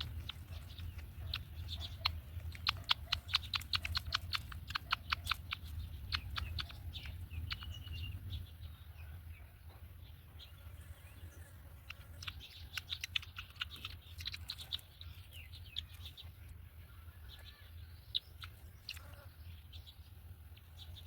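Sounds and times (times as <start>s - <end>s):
bird chicks chirping: 0.0s - 21.0s
steady low hum: 0.0s - 21.0s.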